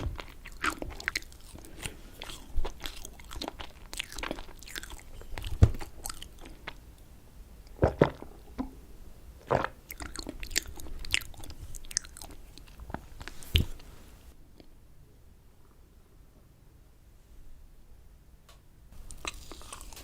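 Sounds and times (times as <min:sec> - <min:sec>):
chewing with wet mouth clicks: 0:00.2 - 0:06.8, 0:09.9 - 0:13.3.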